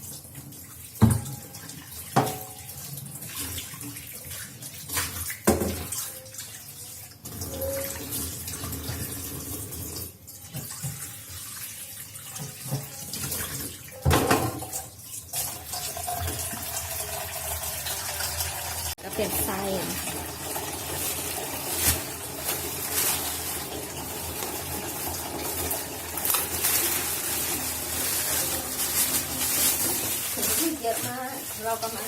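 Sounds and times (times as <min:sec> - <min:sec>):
tap water running into sink: 0:00.0 - 0:32.0
knocks and clatters in sink: 0:01.0 - 0:03.9, 0:04.9 - 0:06.0, 0:12.4 - 0:14.9.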